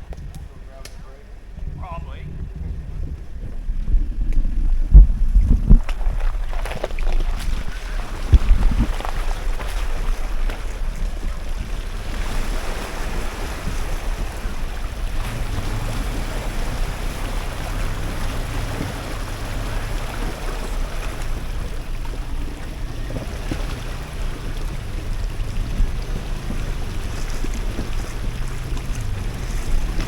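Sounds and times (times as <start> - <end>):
vehicle engine running low: 0.0 - 30.0
wind buffeting microphone: 0.0 - 30.0
water rushing in a stream: 3.7 - 30.0.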